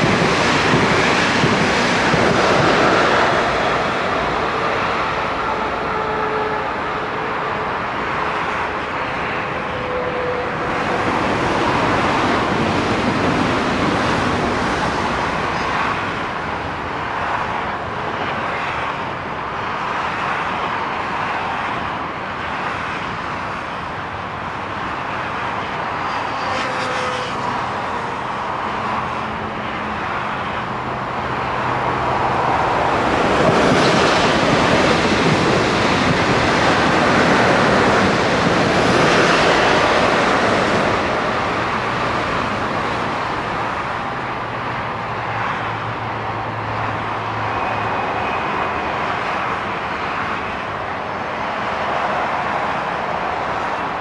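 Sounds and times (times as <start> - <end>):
train wheel and track noise: 0.0 - 54.0.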